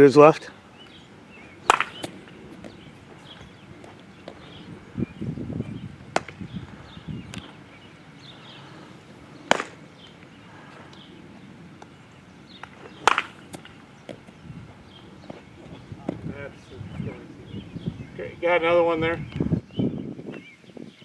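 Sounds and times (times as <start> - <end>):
ball caught in glove: 1.6 - 2.8, 6.1 - 6.4, 9.5 - 9.8, 12.9 - 14.2
bat striking ball: 1.6 - 4.6, 6.1 - 7.6, 9.4 - 10.9, 11.8 - 16.3.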